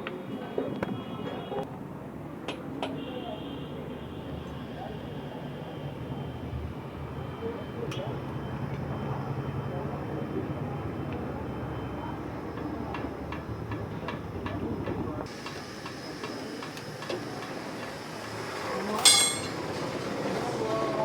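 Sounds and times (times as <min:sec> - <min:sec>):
ringing metal strike: 0:19.0 - 0:19.6
tools clicking on wheel nuts: 0:19.0 - 0:19.6.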